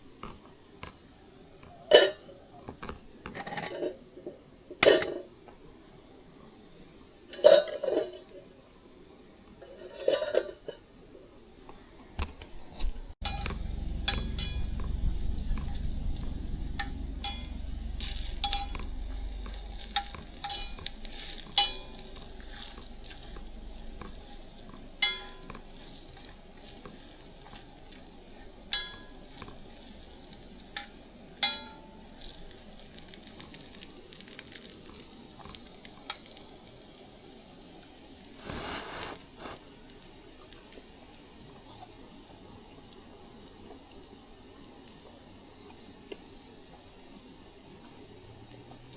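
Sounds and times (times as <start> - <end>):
low rumble: 13.2 - 25.7
sizzling and crackling: 13.2 - 48.8.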